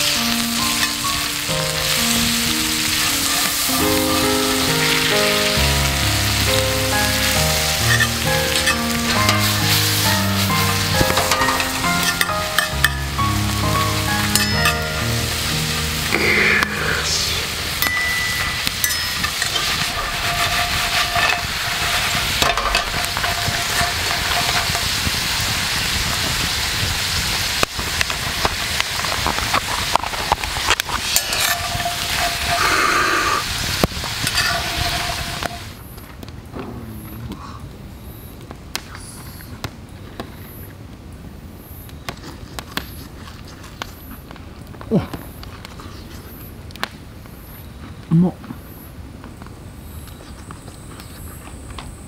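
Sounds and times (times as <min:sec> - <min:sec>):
background music: 0:00.0 - 0:19.2
fries sizzling in butter: 0:00.0 - 0:35.8.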